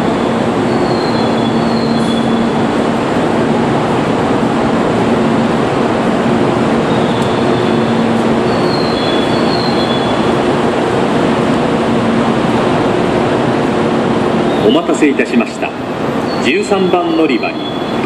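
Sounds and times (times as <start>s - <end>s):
standing train running rumble: 0.0s - 18.0s
faint high whistling tones: 0.1s - 2.6s, 6.9s - 10.4s, 14.5s - 15.5s, 16.2s - 18.0s.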